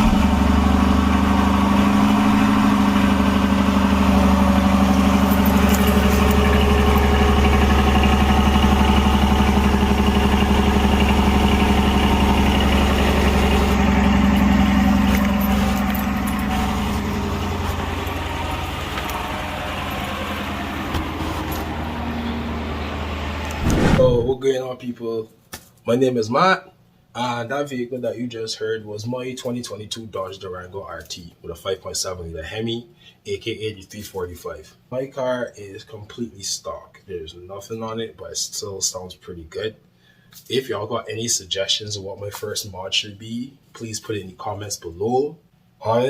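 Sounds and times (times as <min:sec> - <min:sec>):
car engine idling: 0:00.0 - 0:23.6.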